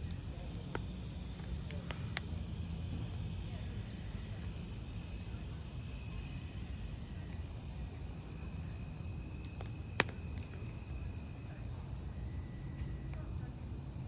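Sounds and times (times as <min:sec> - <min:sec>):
fire popping: 0:00.0 - 0:13.4
campfire burning: 0:00.0 - 0:14.0
crickets chirping: 0:00.0 - 0:14.0.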